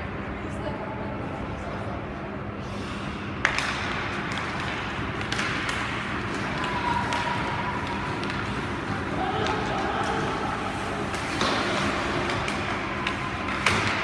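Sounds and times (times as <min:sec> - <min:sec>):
ice rink noisy background: 0:00.0 - 0:14.0
light clicks of sticks and skates: 0:02.6 - 0:14.0.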